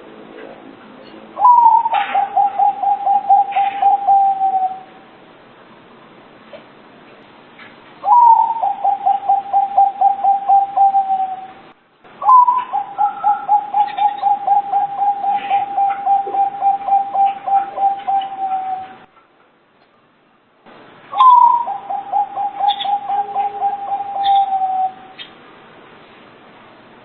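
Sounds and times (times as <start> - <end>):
dove cooing: 1.4 - 5.0, 8.0 - 11.6, 12.2 - 19.1, 21.1 - 25.3.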